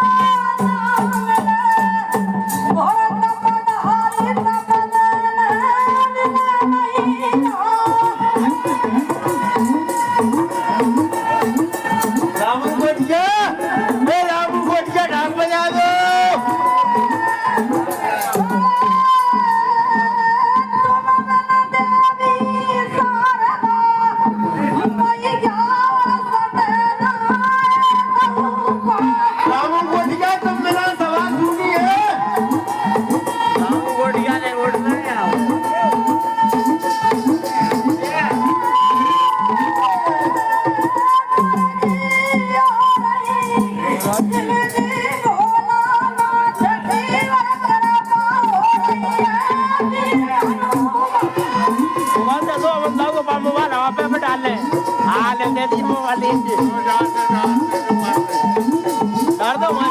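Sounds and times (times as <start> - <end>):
fast percussion with rattle: 0.0 - 59.9
drum strokes: 24.1 - 59.9
wavering held melody: 27.2 - 59.9.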